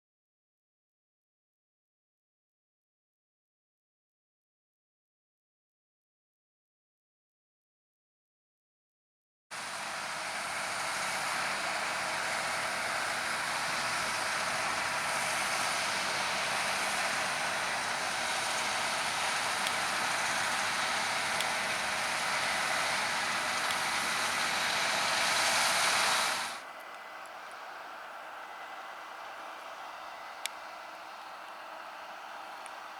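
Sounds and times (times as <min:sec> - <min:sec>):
combine harvester running: 0:09.6 - 0:32.9.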